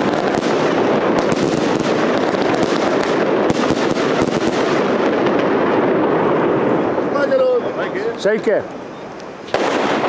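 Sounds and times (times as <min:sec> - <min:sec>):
fireworks popping and crackling: 0:00.0 - 0:10.0
steady rushing noise: 0:00.0 - 0:10.0.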